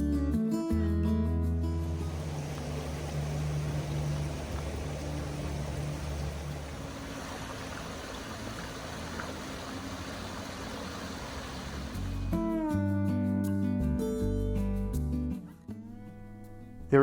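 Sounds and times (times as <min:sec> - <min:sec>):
creek rushing over rocks: 0:02.0 - 0:12.2.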